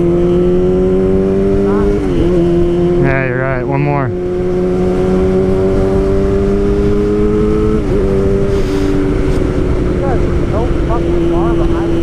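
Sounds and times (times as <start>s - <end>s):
motorcycle engine at high revs: 0.0s - 12.0s
wind rush on microphone: 4.0s - 12.0s.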